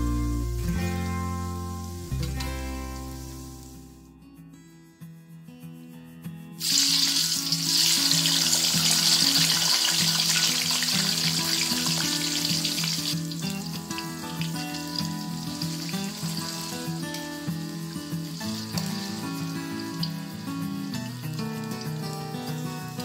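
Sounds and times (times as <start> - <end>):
soft background music: 0.0 - 23.0
oil sizzling in a wok: 0.3 - 4.0, 6.6 - 22.6.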